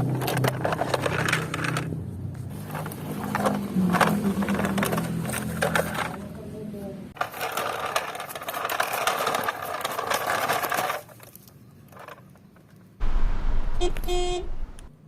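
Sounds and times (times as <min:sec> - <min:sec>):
toy cars clattering: 0:00.0 - 0:13.0
low rumble: 0:13.0 - 0:15.0.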